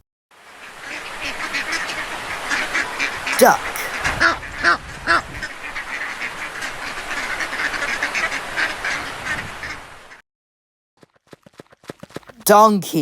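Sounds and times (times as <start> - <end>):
flock of ducks quacking: 0.4 - 10.2.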